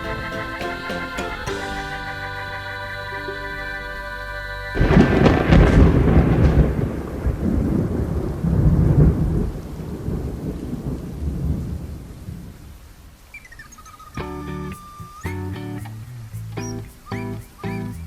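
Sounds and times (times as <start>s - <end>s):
thunder crack and rumble: 4.8s - 12.5s
rain: 4.8s - 15.3s.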